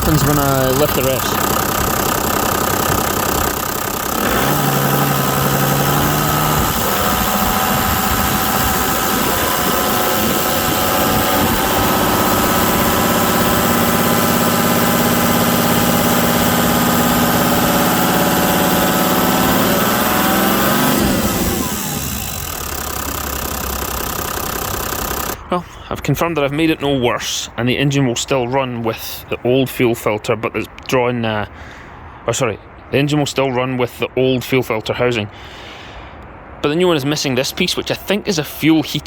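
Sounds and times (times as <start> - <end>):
diesel engine revving: 0.0 - 25.5.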